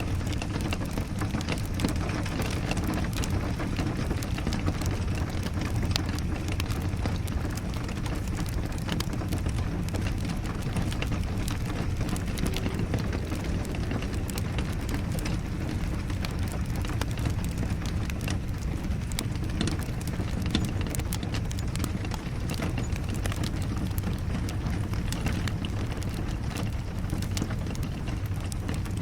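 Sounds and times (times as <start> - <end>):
rain rushing: 0.0 - 29.0
wood fire crackling and popping: 0.0 - 29.0.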